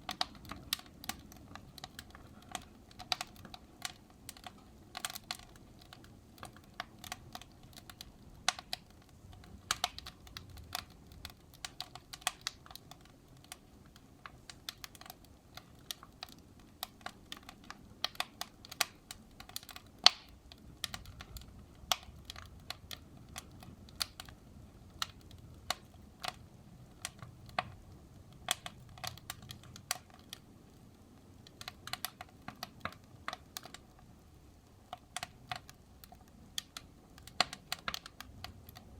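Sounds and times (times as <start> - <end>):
low rumble of flames: 0.0 - 38.9
wood fire crackling and popping: 0.0 - 38.9.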